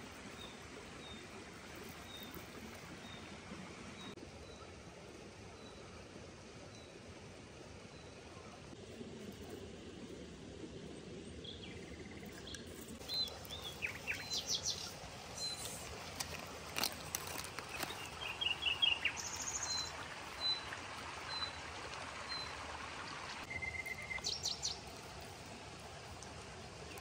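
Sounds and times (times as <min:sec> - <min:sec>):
small birds chirping and trilling: 0:11.4 - 0:20.7, 0:23.4 - 0:24.9.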